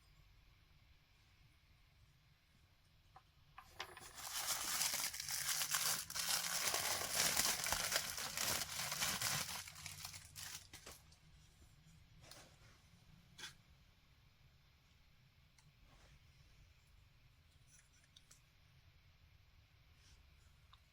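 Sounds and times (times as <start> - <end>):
packaging crinkling and rustling: 3.8 - 11.0.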